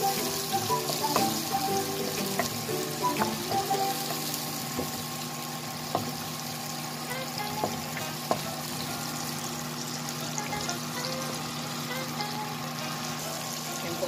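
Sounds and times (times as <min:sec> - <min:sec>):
vegetables sizzling in oil: 0:00.0 - 0:14.0
wooden spatula knocking pan: 0:02.2 - 0:05.1, 0:05.9 - 0:06.3, 0:07.6 - 0:08.5.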